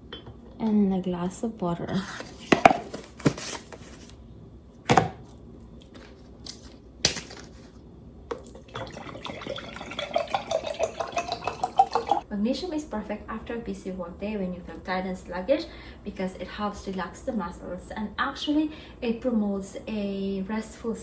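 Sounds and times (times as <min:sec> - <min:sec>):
water poured into a glass: 0:08.4 - 0:12.2.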